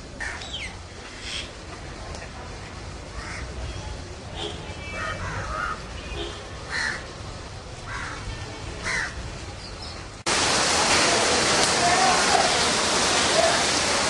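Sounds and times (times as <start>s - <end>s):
rain hiss: 0.0s - 14.0s
crows cawing: 3.2s - 3.5s, 5.0s - 5.8s, 6.7s - 7.1s, 7.9s - 8.2s, 8.8s - 9.2s.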